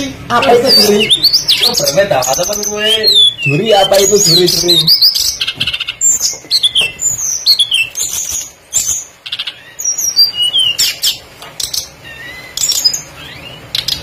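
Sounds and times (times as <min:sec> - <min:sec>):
songbird chirping: 0:00.0 - 0:14.0.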